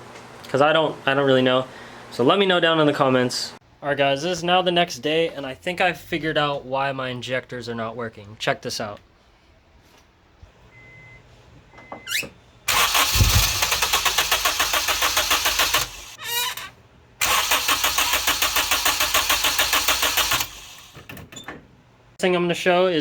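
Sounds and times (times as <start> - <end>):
engine cranking on starter: 12.7 - 21.1.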